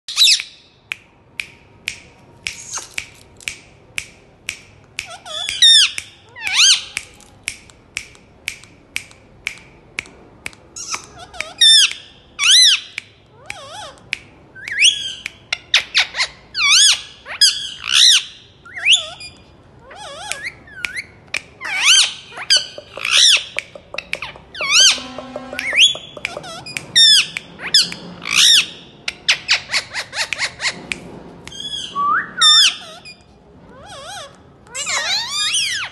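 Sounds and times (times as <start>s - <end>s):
parakeet chirping and squawking: 5.1s - 6.9s, 21.6s - 30.8s, 33.8s - 35.9s.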